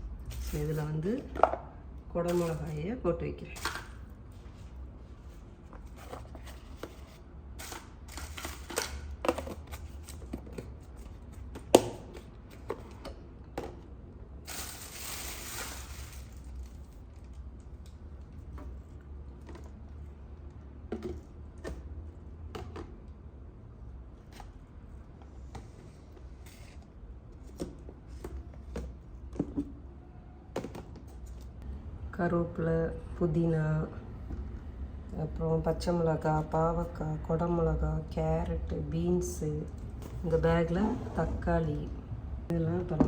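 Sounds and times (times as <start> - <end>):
low steady hum: 0.0 - 43.0
plastic bag rustling: 14.4 - 17.2.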